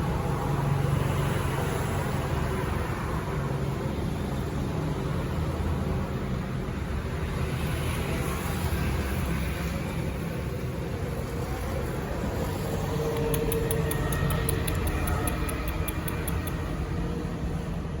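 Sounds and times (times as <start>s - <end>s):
rapid faint high ticks: 13.0s - 16.8s.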